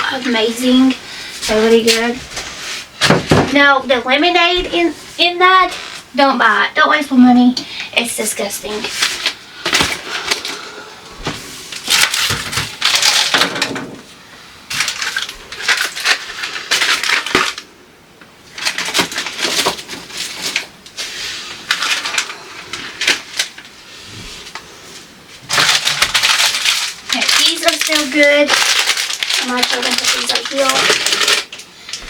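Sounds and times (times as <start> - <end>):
packaging rustling: 8.8 - 17.7, 18.4 - 23.8, 24.4 - 32.0
plastic and glass containers clattering: 11.3 - 14.1, 25.4 - 32.0.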